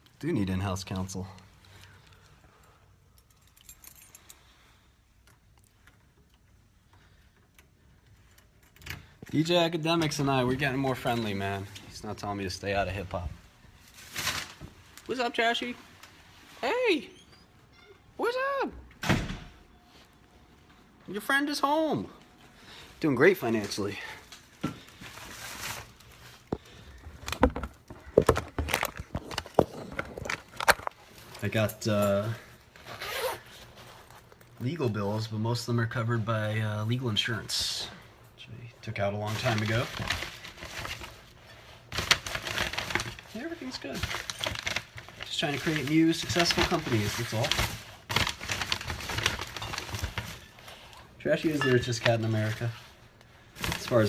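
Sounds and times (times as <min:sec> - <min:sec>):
keys jangling: 0:03.1 - 0:04.5
soft rustle: 0:31.0 - 0:34.7.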